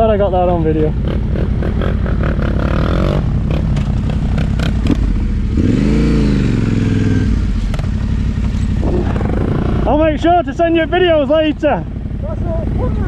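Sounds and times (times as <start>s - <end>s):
motorcycle engine revving: 0.0s - 13.0s
engine clicks and rattles: 3.5s - 5.1s.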